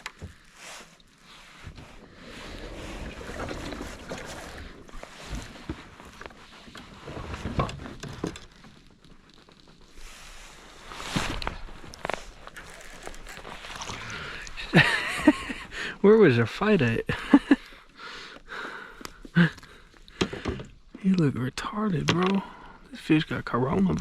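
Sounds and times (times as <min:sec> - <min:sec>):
knocks and rubbing against kayak hull: 0:01.6 - 0:08.6.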